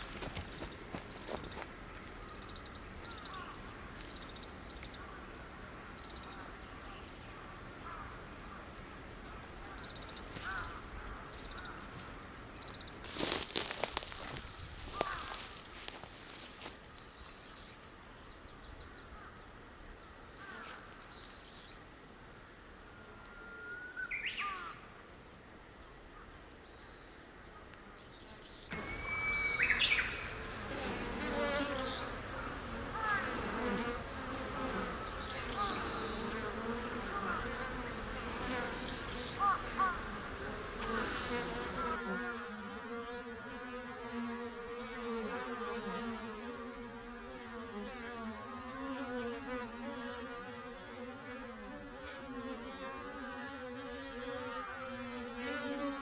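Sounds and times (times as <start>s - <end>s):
birds chirping: 28.6s - 42.0s
high-pitched insect drone: 28.7s - 42.0s
bees buzzing: 28.7s - 56.0s.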